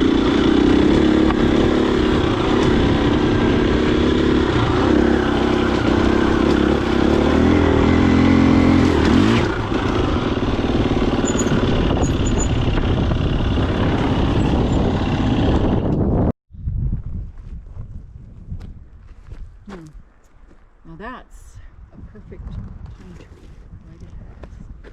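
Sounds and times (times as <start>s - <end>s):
dirt bike engine running: 0.0s - 16.3s.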